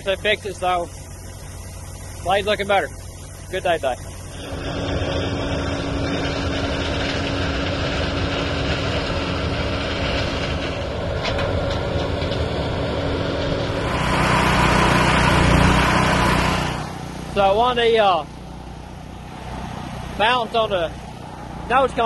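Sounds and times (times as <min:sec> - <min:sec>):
heavy farm machinery running: 0:00.0 - 0:22.0.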